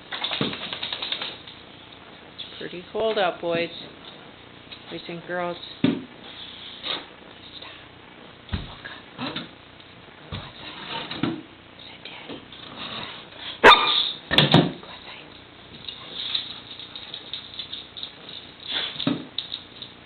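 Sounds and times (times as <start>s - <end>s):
dog barking: 13.6s - 14.2s.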